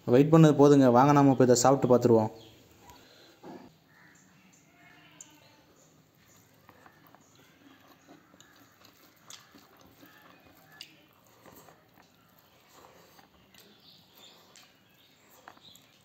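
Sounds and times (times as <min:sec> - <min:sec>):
person chewing with mouth clicks: 0:06.2 - 0:16.0.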